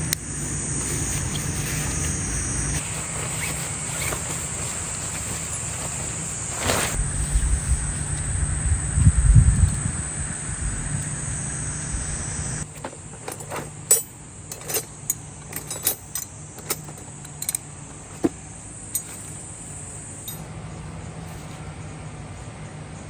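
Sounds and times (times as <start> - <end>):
high insect drone: 0.0 - 22.4
light clicks and clinks: 12.7 - 20.5.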